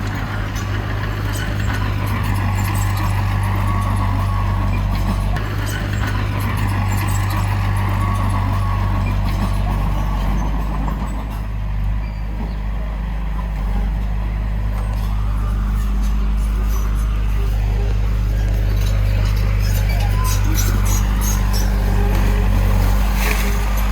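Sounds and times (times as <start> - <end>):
heavy diesel engine humming: 0.0 - 23.9.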